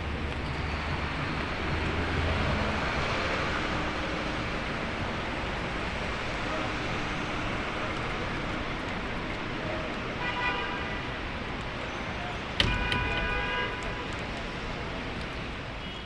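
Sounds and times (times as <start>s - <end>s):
rain and road noise: 0.0s - 16.0s
car horn honks: 12.6s - 14.0s.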